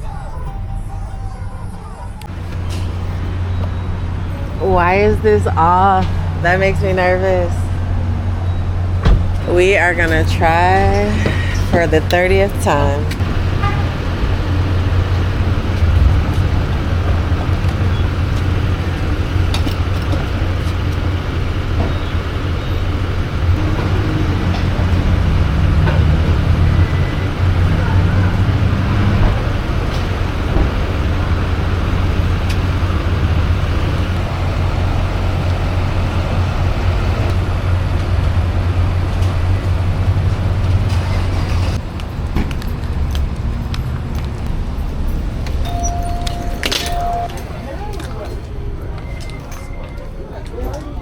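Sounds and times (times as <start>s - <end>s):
road and engine rumble in a vehicle: 0.0s - 51.0s.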